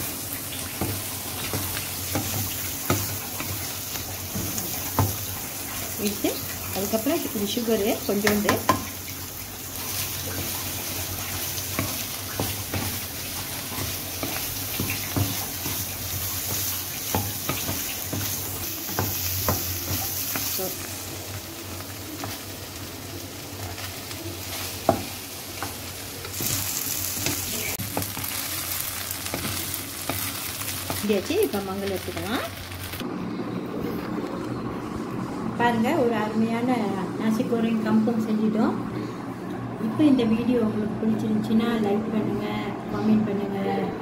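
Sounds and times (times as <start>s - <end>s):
stir-fry sizzling: 0.0s - 33.1s
spatula scraping and tapping pan: 13.7s - 20.6s.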